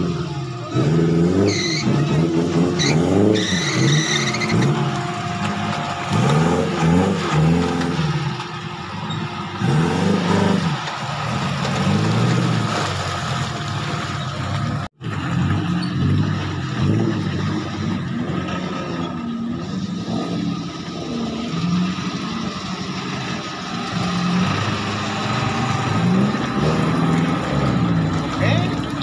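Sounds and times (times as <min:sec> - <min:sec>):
off-road engines revving: 0:00.0 - 0:29.0
short high squeals: 0:01.4 - 0:06.2.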